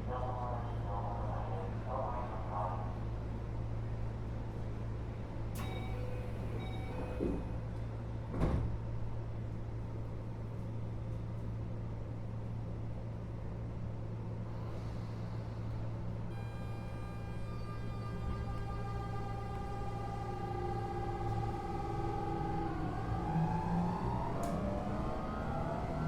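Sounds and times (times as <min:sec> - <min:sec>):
train interior hum: 0:00.0 - 0:26.0
high-pitched tones: 0:16.3 - 0:22.9.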